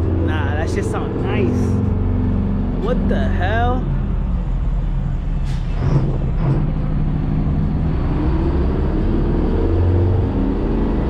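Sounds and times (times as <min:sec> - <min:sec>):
truck engine rumbling: 0:00.0 - 0:11.0
person talking: 0:00.2 - 0:01.8, 0:02.8 - 0:04.0.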